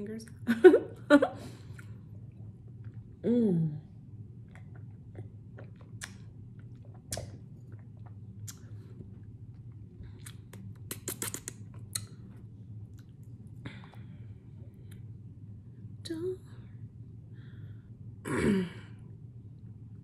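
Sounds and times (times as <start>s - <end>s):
wet chewing smacks: 4.4s - 12.2s.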